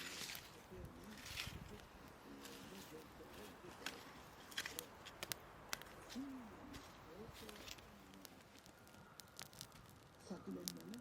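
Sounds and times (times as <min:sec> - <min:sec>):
faint low voices: 0:00.0 - 0:05.1, 0:05.9 - 0:08.7
campfire crackling and popping: 0:00.0 - 0:11.0.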